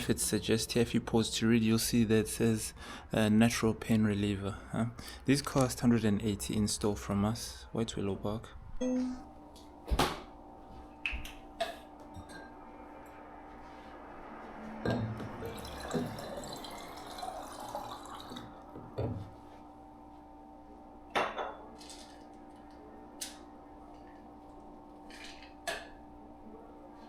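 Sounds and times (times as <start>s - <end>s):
water poured into a glass: 15.1s - 18.7s
glass clinking and knocking: 21.2s - 21.6s.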